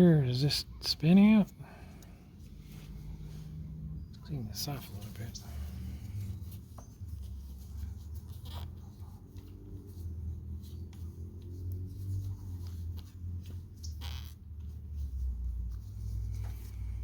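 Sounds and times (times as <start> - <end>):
hand rubbing and scraping metal part: 4.3 - 17.0.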